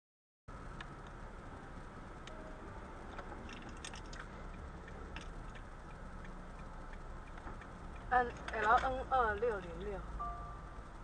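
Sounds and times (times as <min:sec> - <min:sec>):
vehicle rumble: 0:00.5 - 0:11.0
light clicks and ticks: 0:03.1 - 0:09.9.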